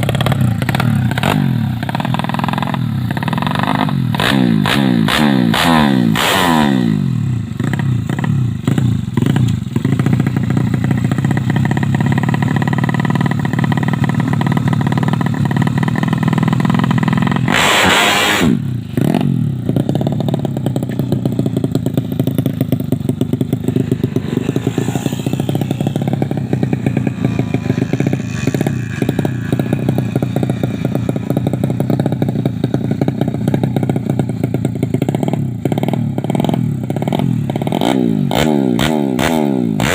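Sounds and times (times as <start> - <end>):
motorcycle engine idling: 0.0 - 4.2, 7.0 - 17.5, 18.6 - 38.4.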